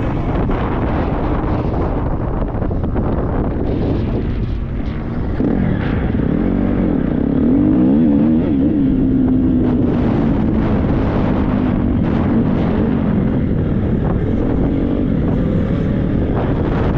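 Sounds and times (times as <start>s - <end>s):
motocross bike engine revving: 5.0s - 16.9s.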